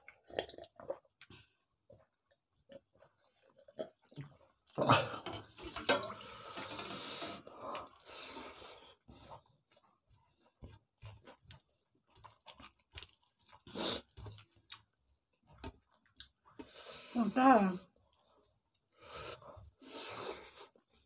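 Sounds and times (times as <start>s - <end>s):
chewing and lip smacks: 9.2s - 16.8s.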